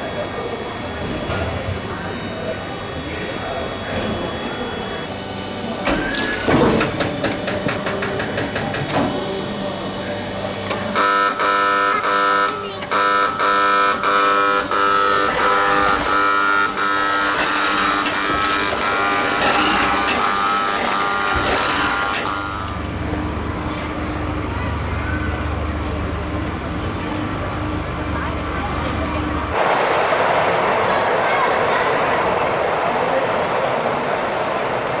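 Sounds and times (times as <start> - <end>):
electronic warning buzzer: 0.0 - 23.0.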